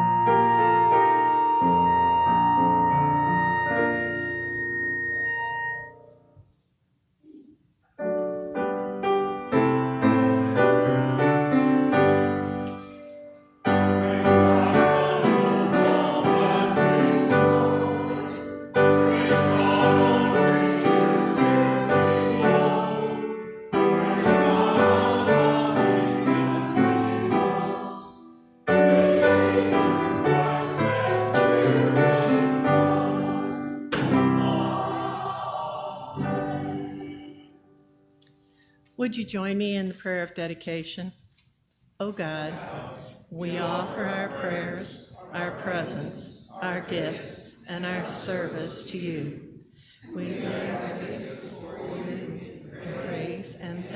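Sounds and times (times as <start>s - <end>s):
piano music: 0.0s - 6.4s, 8.0s - 38.2s.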